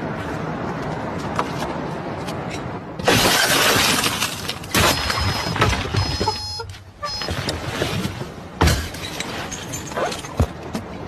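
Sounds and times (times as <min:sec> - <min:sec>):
glass shattering: 0:03.0 - 0:05.8.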